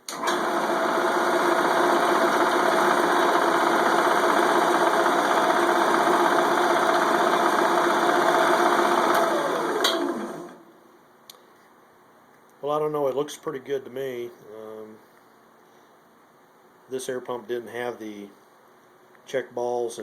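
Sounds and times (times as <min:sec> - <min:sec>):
jigsaw motor humming and rattling: 0:00.1 - 0:10.6.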